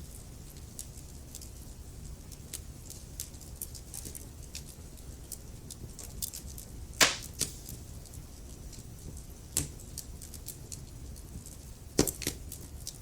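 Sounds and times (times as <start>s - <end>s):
wood fire crackling: 7.0s - 8.1s.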